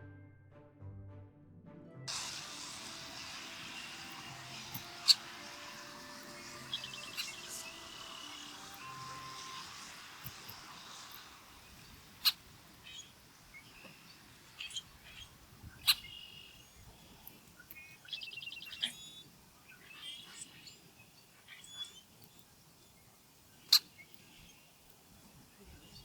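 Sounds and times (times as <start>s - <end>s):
sharp clicks: 2.1s - 19.3s
bird trill: 2.1s - 24.9s
songbirds chirping: 2.1s - 26.0s.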